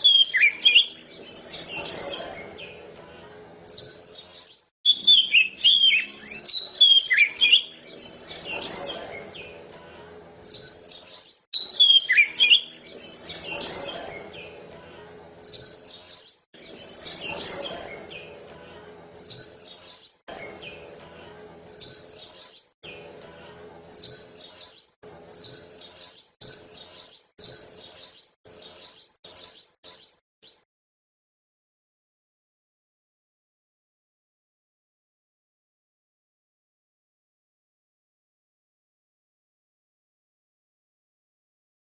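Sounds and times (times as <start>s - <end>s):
bird singing whistled phrases: 0.0s - 2.2s, 4.9s - 9.0s, 11.6s - 14.0s.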